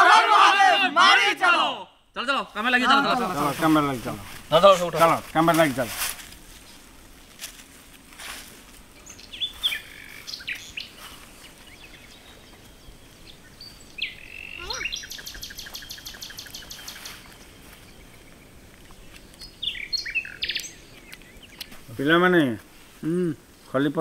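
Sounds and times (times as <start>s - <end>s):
bird calls and whistles: 9.0s - 21.8s.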